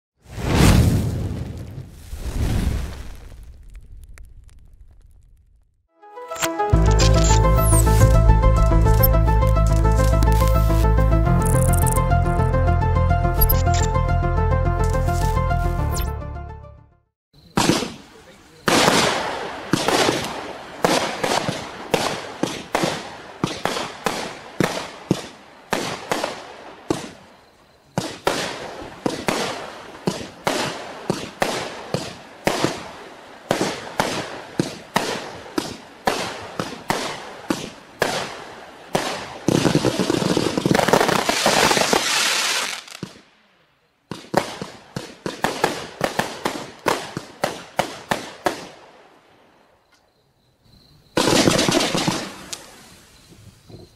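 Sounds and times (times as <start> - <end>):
fireworks shots and bursts: 17.4 - 43.3, 44.0 - 49.0, 51.2 - 53.0.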